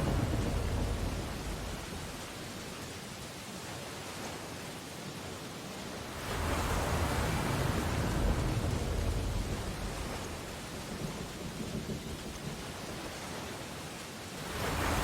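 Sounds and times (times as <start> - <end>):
surf washing on beach: 0.0 - 15.0
wave breaking: 14.4 - 15.0.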